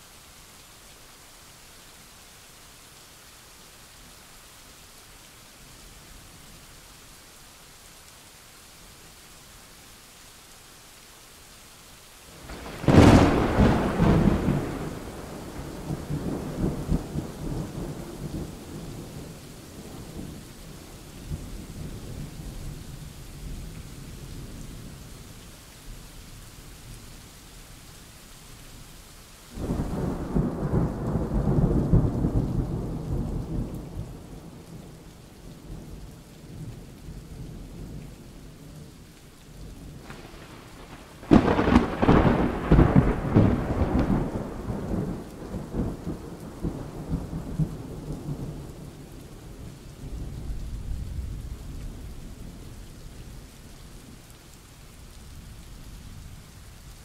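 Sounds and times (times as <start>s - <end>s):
steady rain: 0.0s - 57.0s
crackling thunder clap: 12.4s - 20.4s, 29.6s - 36.8s, 39.8s - 52.6s
rolling thunder: 12.5s - 20.4s, 29.6s - 34.6s, 40.0s - 48.9s.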